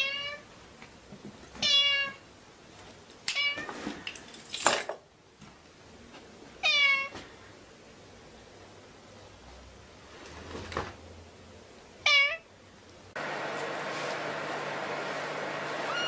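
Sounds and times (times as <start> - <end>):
cat meowing: 0.0 - 0.4, 1.6 - 2.2, 6.6 - 7.1, 12.0 - 12.5.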